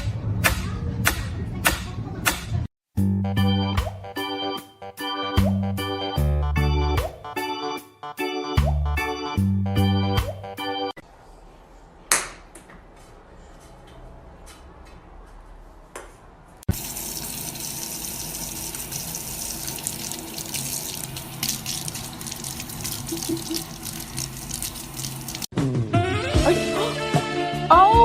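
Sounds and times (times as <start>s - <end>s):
tap water running: 16.7s - 25.5s.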